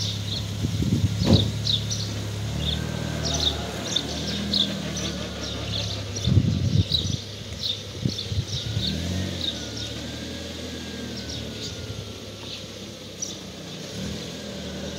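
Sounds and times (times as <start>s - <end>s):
engine knocks: 0.0s - 8.8s
car engine idling: 0.0s - 14.9s
bird chirps: 1.3s - 13.9s.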